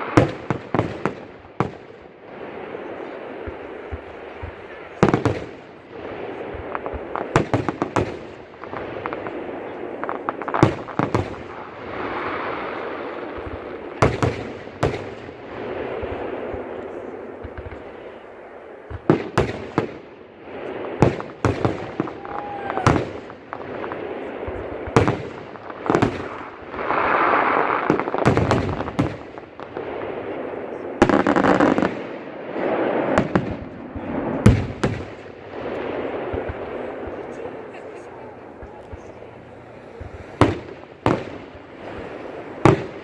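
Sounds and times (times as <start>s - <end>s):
fireworks bangs: 0.0s - 43.0s
steady background noise: 35.1s - 43.0s.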